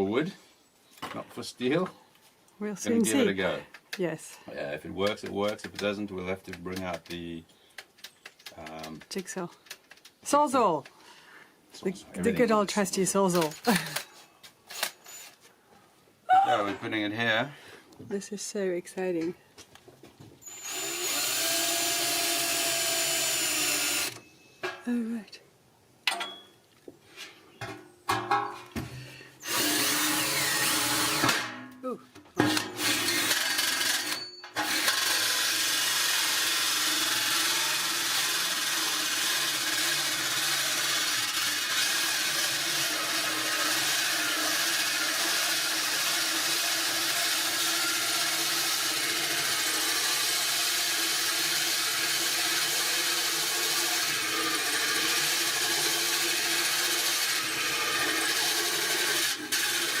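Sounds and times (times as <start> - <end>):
power drill grinding screech on steel: 14.7 - 15.4, 20.4 - 24.6, 29.4 - 31.4, 32.4 - 60.0.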